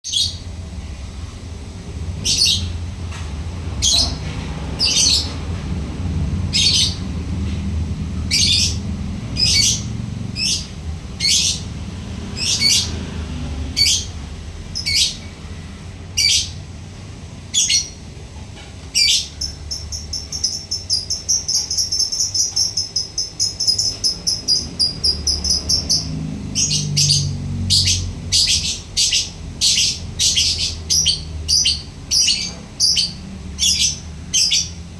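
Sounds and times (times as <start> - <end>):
steady low hum: 0.1 - 34.9
lovebird chirping: 8.3 - 8.8, 9.4 - 13.0, 13.7 - 15.3, 17.5 - 18.0, 19.0 - 34.8
lovebird chattering trill: 8.3 - 11.7, 13.8 - 15.3, 19.0 - 34.8.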